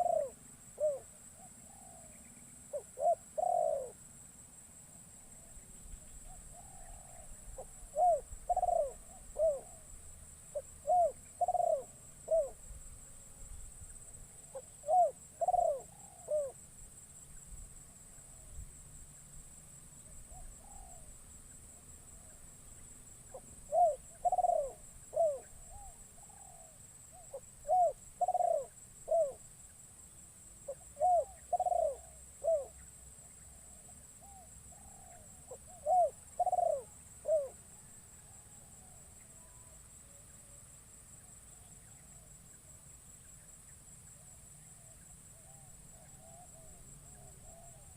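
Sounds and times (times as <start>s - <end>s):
dove cooing: 0.0s - 4.0s, 6.2s - 9.9s, 10.5s - 12.6s, 14.4s - 16.6s, 20.3s - 21.1s, 23.3s - 29.4s, 30.7s - 32.8s, 33.5s - 37.6s.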